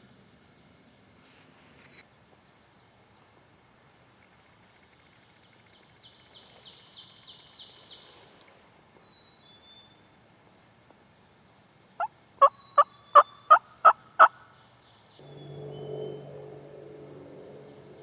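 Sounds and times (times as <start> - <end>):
songbirds singing: 11.1 - 13.8
thin high whistle: 15.2 - 18.0.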